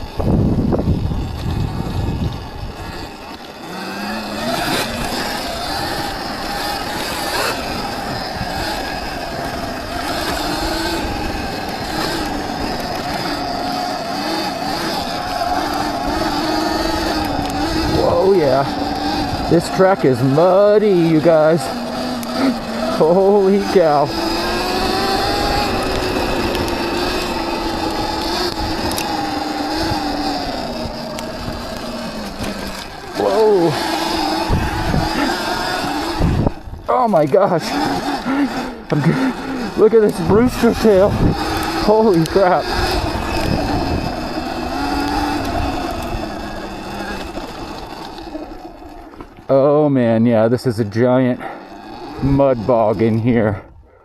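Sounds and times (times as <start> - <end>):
electric motor whine: 0.0 - 49.9, 51.3 - 54.0
tyre and wind noise: 0.0 - 53.9.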